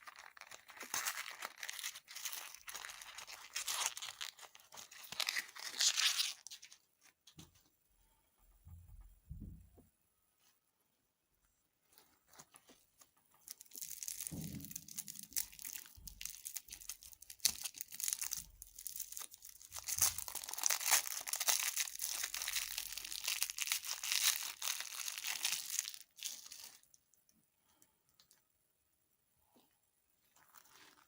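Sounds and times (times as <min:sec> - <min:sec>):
plastic wrapper crinkling and tearing: 0:00.0 - 0:07.3, 0:12.3 - 0:27.0, 0:30.4 - 0:31.0.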